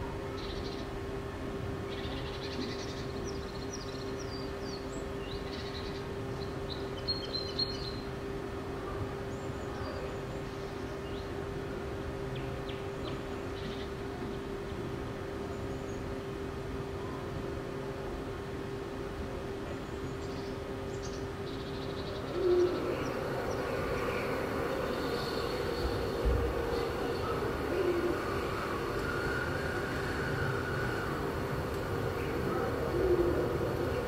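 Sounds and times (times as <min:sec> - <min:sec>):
room hum and rumble: 0:00.0 - 0:34.0
birds chirping: 0:19.7 - 0:34.0.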